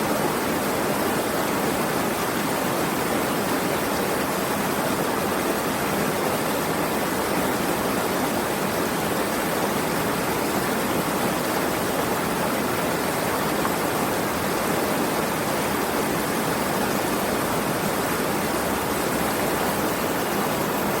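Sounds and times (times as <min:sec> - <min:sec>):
flowing water rushing: 0:00.0 - 0:21.0.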